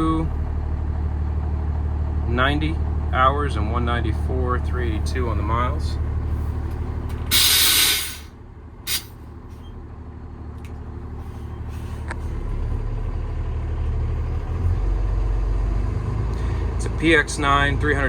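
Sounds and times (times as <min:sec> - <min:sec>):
diesel truck engine running: 0:00.0 - 0:18.0
air brake hiss: 0:07.3 - 0:08.3, 0:08.9 - 0:09.2.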